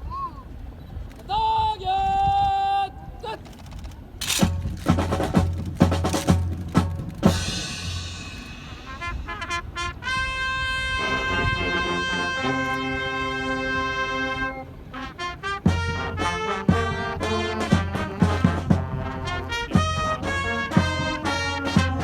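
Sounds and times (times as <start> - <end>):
drum beats: 4.2 - 9.4, 15.6 - 22.0
brass holding long chords: 7.1 - 22.0
cymbal wash: 7.3 - 9.4.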